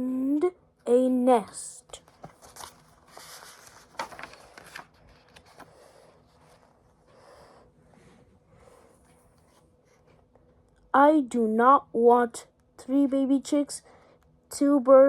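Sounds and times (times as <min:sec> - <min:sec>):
paper pages rustling: 0:01.9 - 0:07.7.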